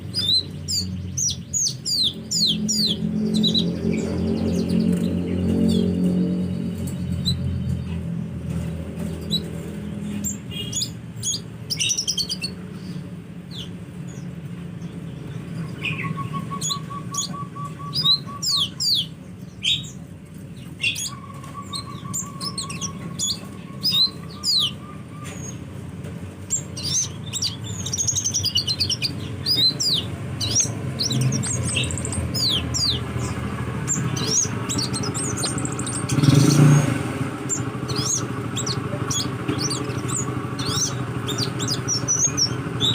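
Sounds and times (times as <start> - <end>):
bird chirping: 0.0 - 42.9
bird trills: 0.1 - 8.0, 15.6 - 20.0, 20.6 - 25.6, 26.5 - 42.9.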